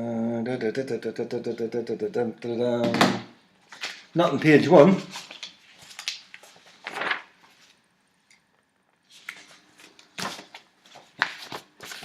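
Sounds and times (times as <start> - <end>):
paper sheets rustling: 3.7 - 7.8, 9.1 - 12.0.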